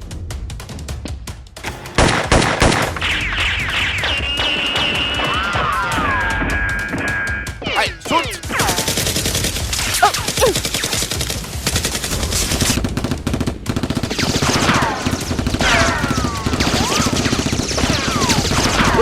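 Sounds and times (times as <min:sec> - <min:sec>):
rapid automatic gunfire: 0:01.9 - 0:03.6, 0:10.7 - 0:19.0.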